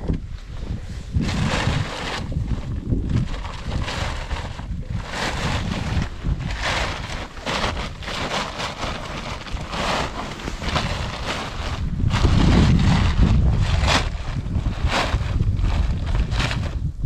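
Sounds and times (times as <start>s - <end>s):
wind rumbling on microphone: 0.0s - 17.0s
footsteps crunching in snow: 5.0s - 12.0s.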